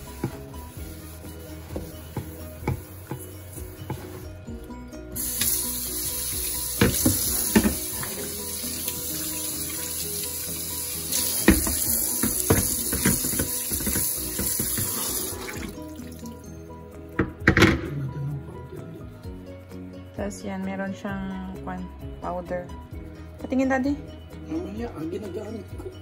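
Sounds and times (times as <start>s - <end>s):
tap water running into sink: 5.2s - 16.4s
pan knocking and clattering: 6.8s - 8.2s, 11.4s - 15.0s.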